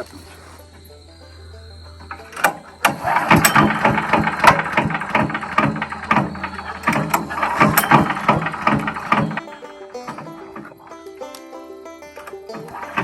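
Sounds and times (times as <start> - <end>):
wood chipper engine starting: 2.0 - 13.0
mechanical clatter: 2.1 - 10.8, 12.3 - 13.0.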